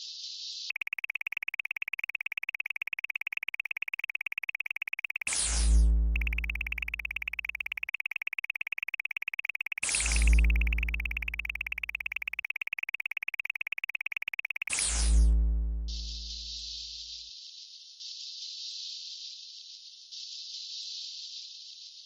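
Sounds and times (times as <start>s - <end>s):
pulsing electronic beep: 0.7s - 16.6s.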